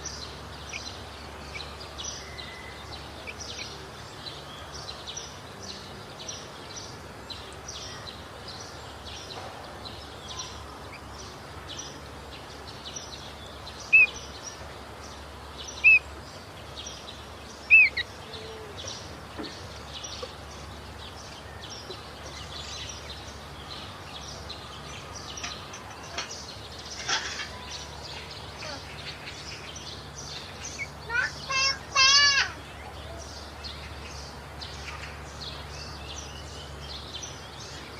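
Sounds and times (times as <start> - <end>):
loud bird chirps: 13.8 - 14.3, 15.7 - 16.0, 16.9 - 20.3, 21.6 - 37.8.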